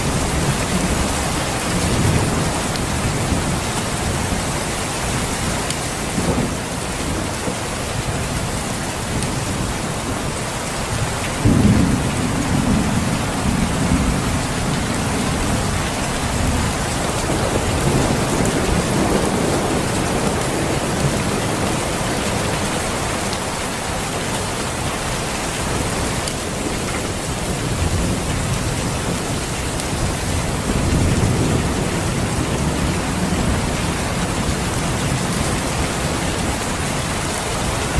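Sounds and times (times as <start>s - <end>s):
heavy rain falling: 0.0s - 37.9s
low thunder rolls: 11.0s - 22.4s.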